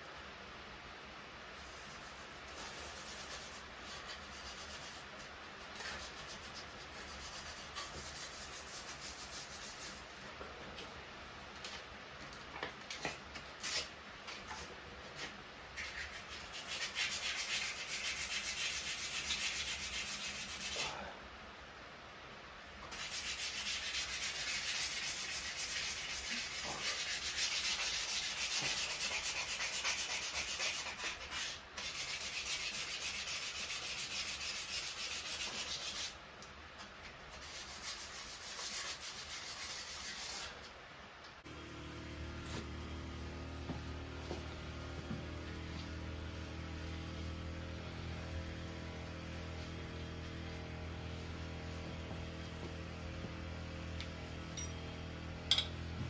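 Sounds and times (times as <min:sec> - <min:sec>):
hand sanding strokes: 0:01.6 - 0:10.2, 0:14.6 - 0:21.0, 0:22.8 - 0:36.2, 0:37.3 - 0:40.7, 0:42.4 - 0:54.4.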